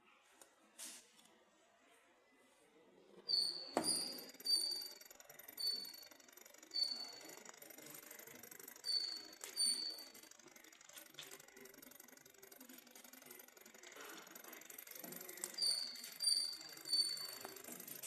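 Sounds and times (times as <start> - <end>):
low background murmur: 0.0 - 18.0
high-pitched squeak: 3.3 - 6.1, 8.8 - 10.2, 15.4 - 17.7
model engine running: 3.8 - 18.0.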